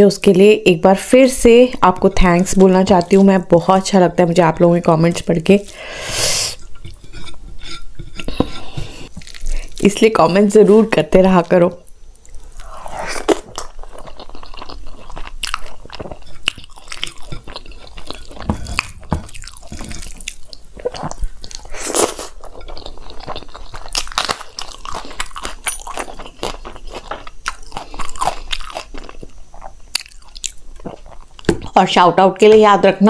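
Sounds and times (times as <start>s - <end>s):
person chewing food: 6.5s - 10.4s, 11.9s - 31.8s.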